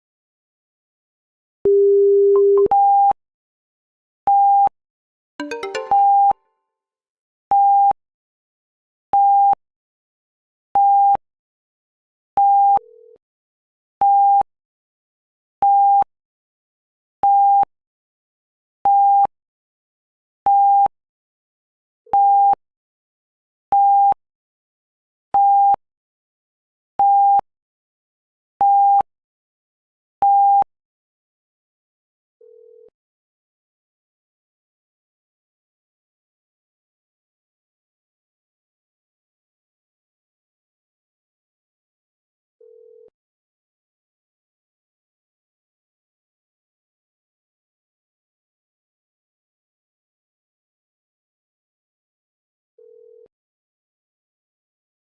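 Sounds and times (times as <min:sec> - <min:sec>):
long low alert tone: 0:05.4 - 0:06.3
short electronic jingle: 0:05.4 - 0:06.3.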